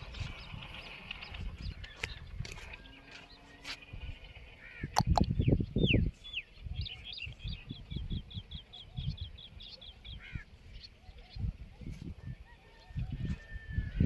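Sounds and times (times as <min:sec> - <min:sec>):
birds whistling and chirping: 0:00.0 - 0:14.0.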